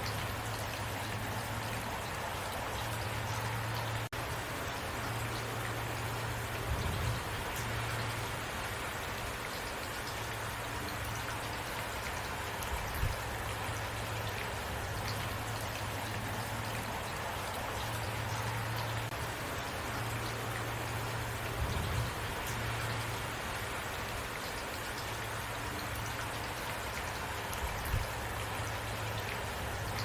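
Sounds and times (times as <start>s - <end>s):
rain pattering: 0.0s - 30.0s.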